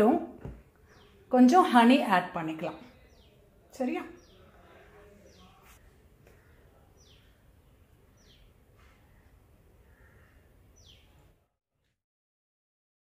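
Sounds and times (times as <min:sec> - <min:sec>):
bird chirping: 0:00.8 - 0:01.3, 0:02.6 - 0:11.5.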